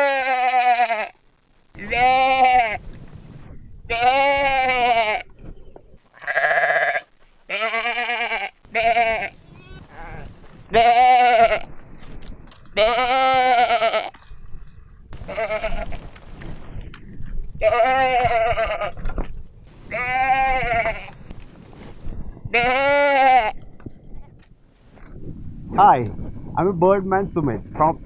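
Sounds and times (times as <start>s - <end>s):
man imitating goat bleat: 0.0s - 1.2s, 1.8s - 2.8s, 3.9s - 5.3s, 6.2s - 11.7s, 15.2s - 15.9s, 19.9s - 21.1s, 22.5s - 23.5s.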